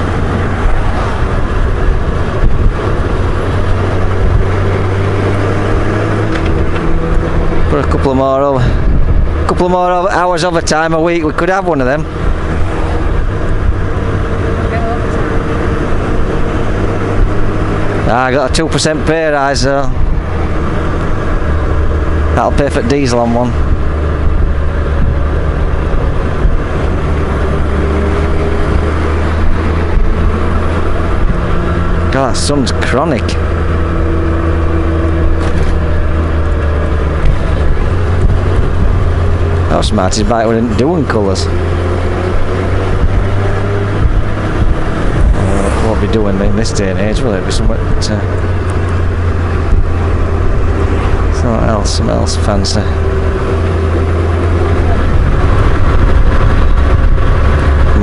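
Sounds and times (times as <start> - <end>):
motorcycle engine cruising: 0.0 - 58.0
road noise: 0.0 - 58.0
wind noise: 0.0 - 58.0.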